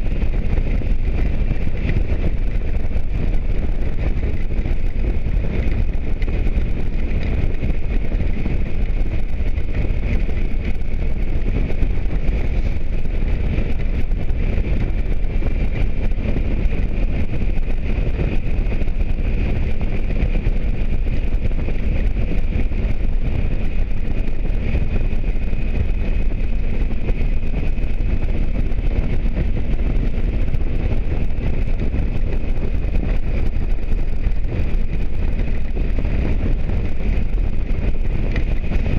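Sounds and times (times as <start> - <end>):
motorcycle engine drone: 0.0 - 38.9
road noise: 0.0 - 38.9
wind rush on microphone: 0.0 - 38.9.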